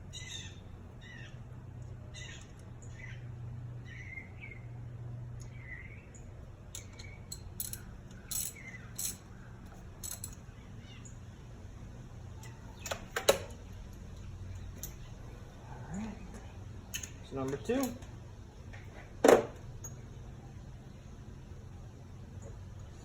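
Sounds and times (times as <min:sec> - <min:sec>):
birds chirping faintly: 0:00.0 - 0:23.0
steady low hum: 0:00.0 - 0:23.0
metallic clinks of hand tools: 0:06.7 - 0:09.3, 0:10.0 - 0:10.4.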